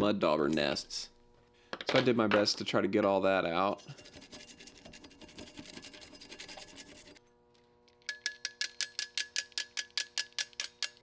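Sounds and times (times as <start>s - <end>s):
scraping on metal: 3.7s - 7.2s.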